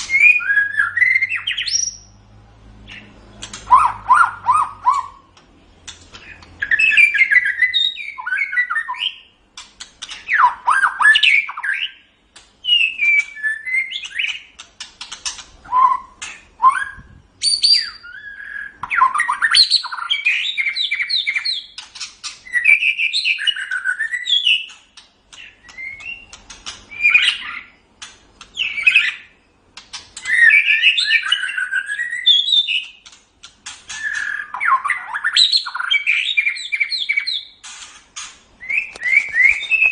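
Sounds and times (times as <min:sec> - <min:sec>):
songbird whistling song: 0:00.0 - 0:02.2, 0:02.8 - 0:05.4, 0:06.1 - 0:09.4, 0:10.0 - 0:33.1, 0:33.9 - 0:38.0, 0:38.6 - 0:39.9
bird sharp clicks: 0:02.9 - 0:04.0.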